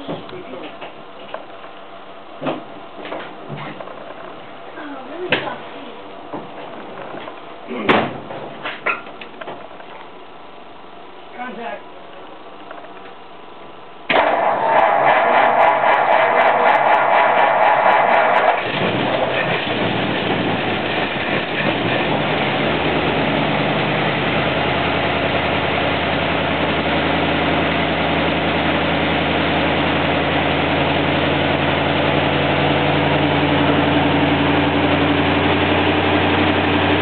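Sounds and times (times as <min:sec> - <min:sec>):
car engine starting and idling: 0:14.1 - 0:37.0.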